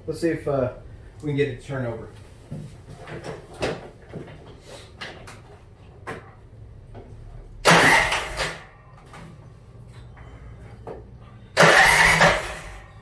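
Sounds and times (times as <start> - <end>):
electric starter cranking engine: 7.6 - 9.1, 11.5 - 13.0.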